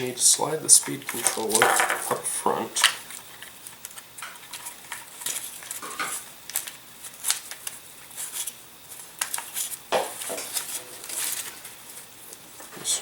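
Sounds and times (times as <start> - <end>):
wires rustling: 0.6 - 13.0
small parts clicking and tapping: 0.8 - 2.2.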